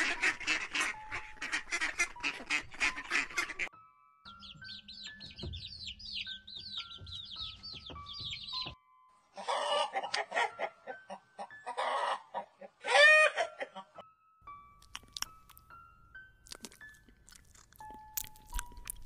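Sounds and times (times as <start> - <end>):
chickens clucking: 0.0 - 3.7, 9.4 - 14.0
chicks peeping: 4.3 - 8.8.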